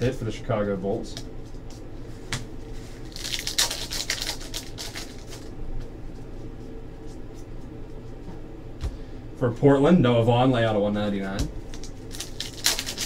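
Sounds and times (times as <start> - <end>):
steady low hum: 0.0 - 13.0
trading cards rustling and snapping: 3.0 - 5.5, 11.7 - 13.0.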